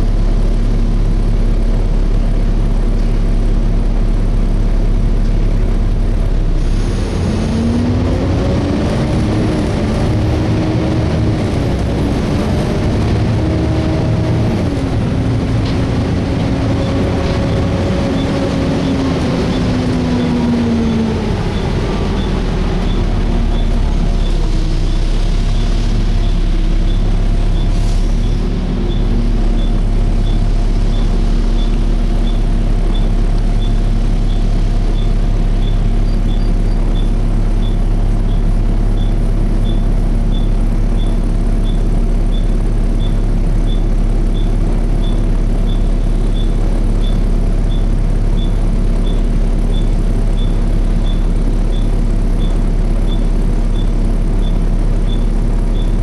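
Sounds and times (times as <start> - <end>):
bus engine and fan running: 0.0 - 56.0
light ticking: 10.8 - 27.7, 28.9 - 56.0.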